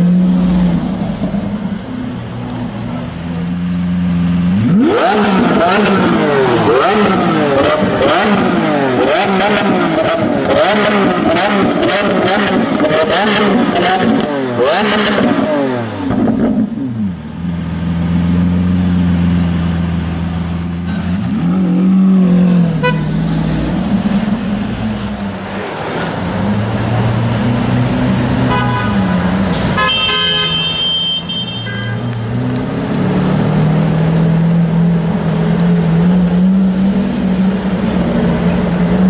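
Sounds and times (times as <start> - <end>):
car engine idling and revving: 0.0 - 39.0
car horn: 22.7 - 23.2, 28.4 - 32.3.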